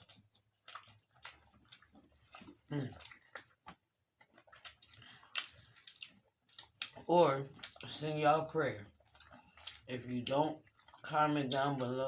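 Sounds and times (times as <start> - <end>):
wet mouth clicks and smacks: 0.0 - 8.0, 9.0 - 9.9, 10.7 - 11.1
chewing: 0.0 - 12.0.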